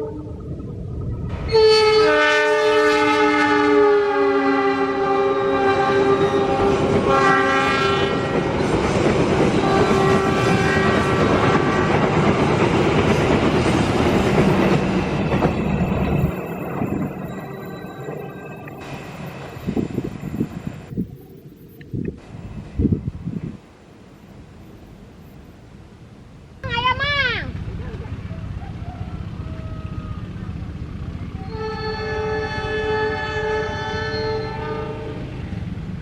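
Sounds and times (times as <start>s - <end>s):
train rumbling past: 0.0s - 36.0s
train horn blast: 1.4s - 8.5s, 9.6s - 12.2s, 31.4s - 35.6s.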